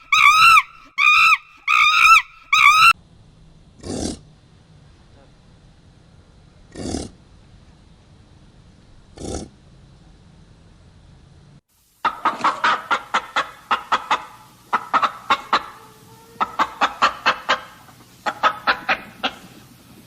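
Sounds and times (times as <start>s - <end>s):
birds giving sharp calls: 0.0s - 3.0s.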